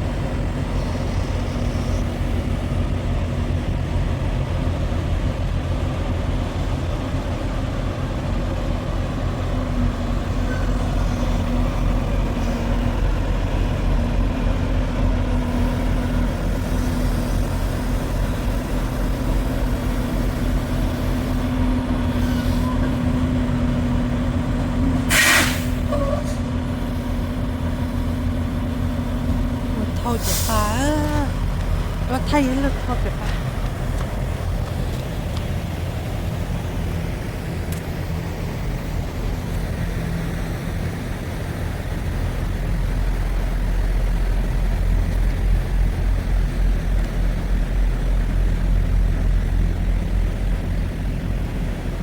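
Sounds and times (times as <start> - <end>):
truck engine droning: 0.0 - 52.0
short hiss: 25.1 - 25.8.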